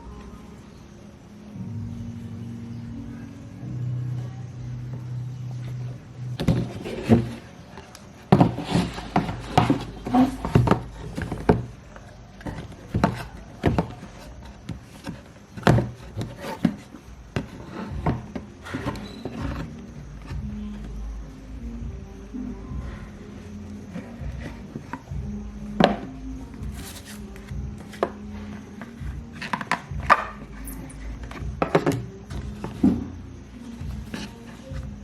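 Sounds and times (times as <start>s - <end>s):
objects tapping and knocking: 6.4s - 21.0s, 25.8s - 35.0s.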